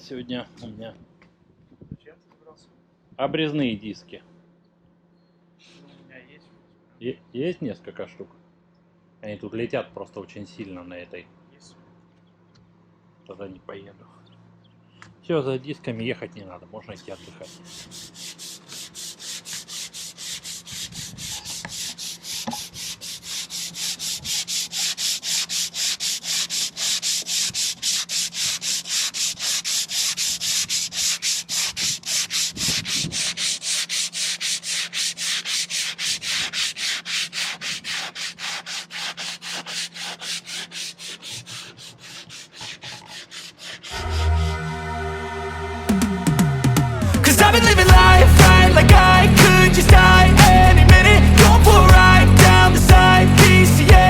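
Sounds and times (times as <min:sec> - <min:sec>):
hand sanding with sandpaper: 0:16.9 - 0:44.5, 0:47.4 - 0:54.0.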